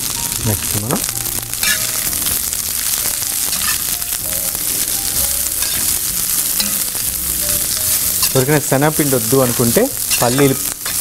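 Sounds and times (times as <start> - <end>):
vegetables sizzling in oil: 0.0 - 11.0
metal spoon scraping and clinking: 1.6 - 2.1, 3.5 - 4.0, 5.6 - 8.6, 9.5 - 11.0.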